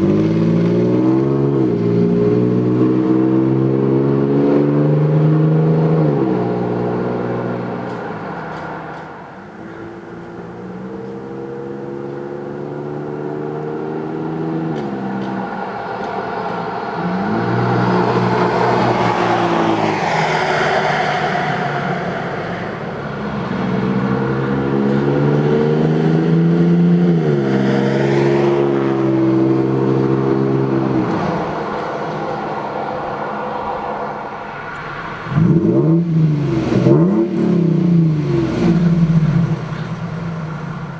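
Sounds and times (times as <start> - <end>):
truck engine revving: 10.4 - 33.7, 34.9 - 40.9.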